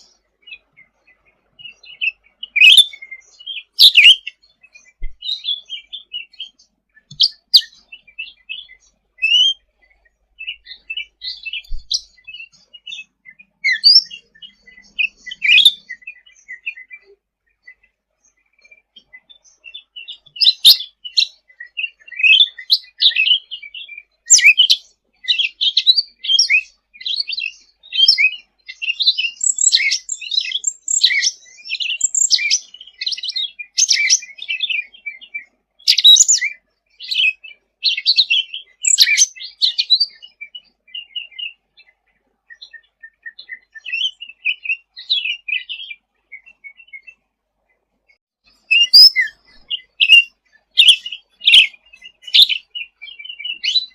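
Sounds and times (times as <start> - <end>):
songbird chirping and trilling: 0.0 - 53.9.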